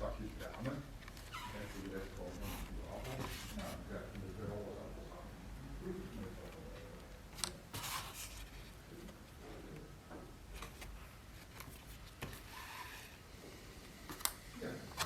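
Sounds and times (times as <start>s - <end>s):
scraping and rustling: 0.2s - 4.2s, 7.7s - 9.2s.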